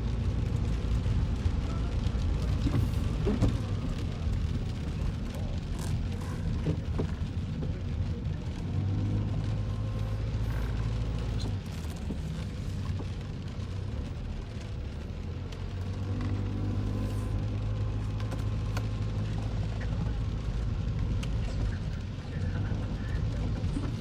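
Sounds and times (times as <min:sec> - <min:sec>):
car engine and road rumble: 0:00.0 - 0:24.0
light ticks: 0:15.4 - 0:16.4.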